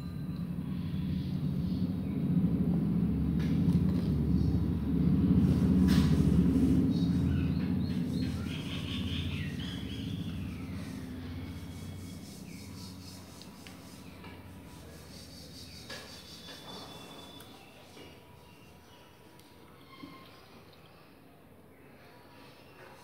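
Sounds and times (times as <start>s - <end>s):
passing train rumble: 0.0s - 15.1s.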